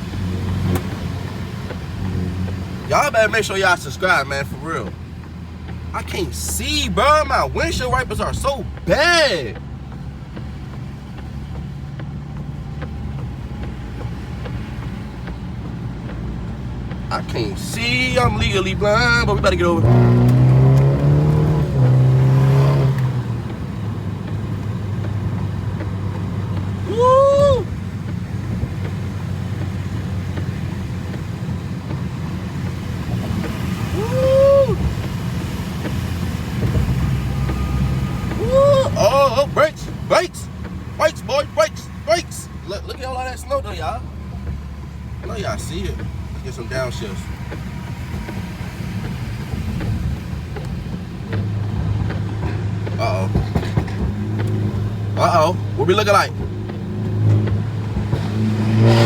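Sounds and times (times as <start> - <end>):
faint light ticks: 0.0 - 4.1, 4.8 - 6.0, 9.5 - 38.8, 47.2 - 58.4
car engine and road noise: 0.0 - 59.0.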